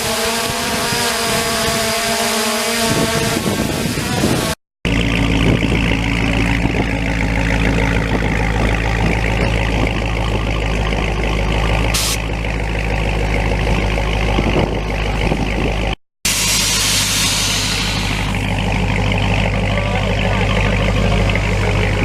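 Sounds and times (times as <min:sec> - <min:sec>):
engine idling: 0:04.9 - 0:22.0.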